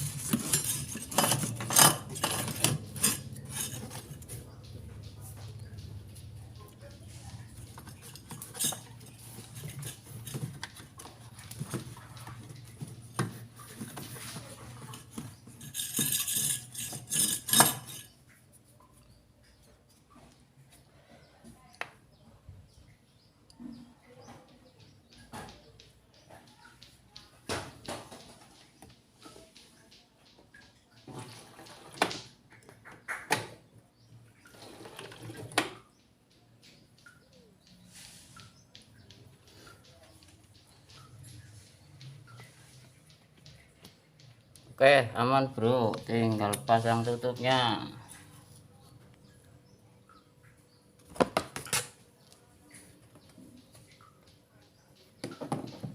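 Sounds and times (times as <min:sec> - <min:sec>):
washing machine parts clattering: 0:00.0 - 0:18.4, 0:31.0 - 0:36.0, 0:55.0 - 0:55.9.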